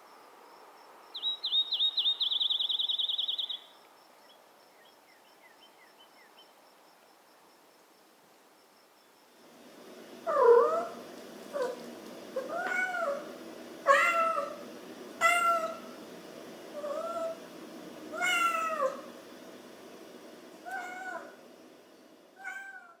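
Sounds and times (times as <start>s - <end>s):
low background hiss: 0.0s - 23.0s
cat meowing: 10.3s - 11.0s, 12.4s - 14.6s, 15.2s - 15.9s, 16.8s - 17.4s, 18.1s - 19.1s, 20.6s - 21.4s, 22.4s - 23.0s.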